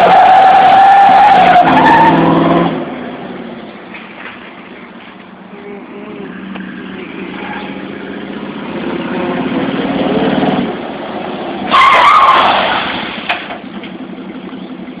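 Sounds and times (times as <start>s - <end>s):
loud tyre screech: 0.0s - 2.8s, 11.6s - 13.5s
truck engine revving: 0.0s - 15.0s.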